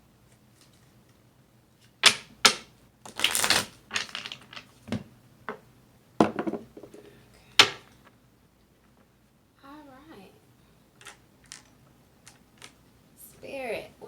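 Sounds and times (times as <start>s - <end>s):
cards being shuffled: 1.8s - 4.7s.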